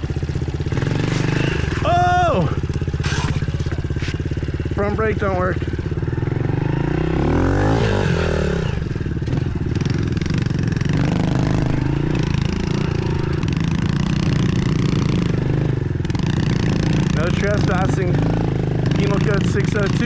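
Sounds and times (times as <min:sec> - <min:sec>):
pit bike engines revving: 0:00.0 - 0:20.0.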